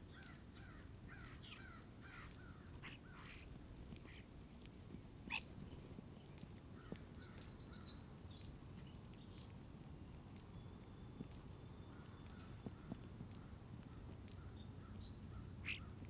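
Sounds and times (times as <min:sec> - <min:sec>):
low steady background noise: 0:00.0 - 0:16.0
birds calling: 0:00.1 - 0:04.3, 0:05.2 - 0:05.9, 0:11.8 - 0:16.0.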